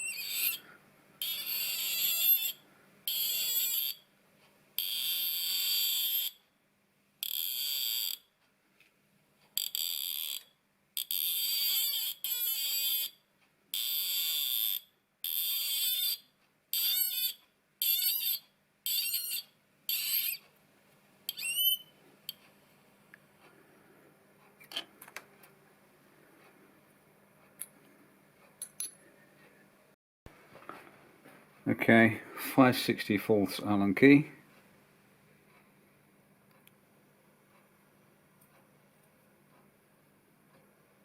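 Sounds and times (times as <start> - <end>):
cutting tool squealing on brass: 0.0 - 4.0, 4.8 - 6.4, 7.2 - 8.2, 9.6 - 13.2, 13.8 - 20.4, 21.3 - 21.9.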